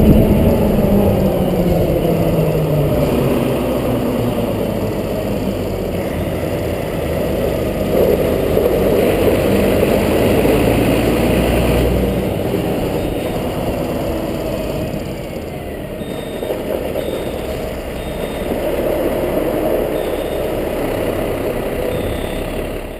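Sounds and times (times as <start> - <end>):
road noise: 0.0 - 22.9
truck engine running heavily: 0.0 - 22.9
backup alarm beeping: 15.6 - 22.9.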